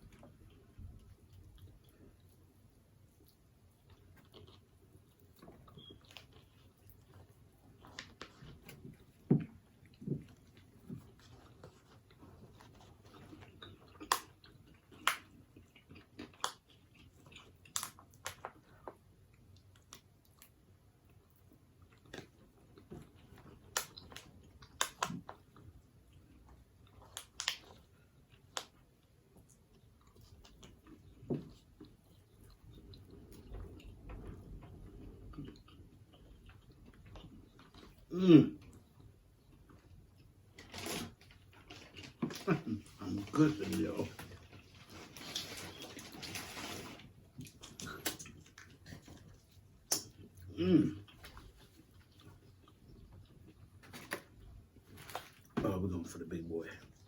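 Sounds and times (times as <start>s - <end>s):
person chewing with crunches: 0.0s - 55.6s
wet mouth clicks: 49.9s - 50.2s.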